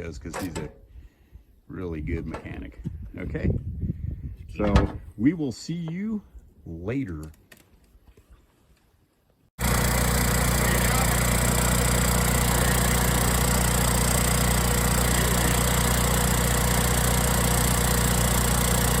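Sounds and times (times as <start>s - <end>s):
generator engine running: 9.6s - 19.0s.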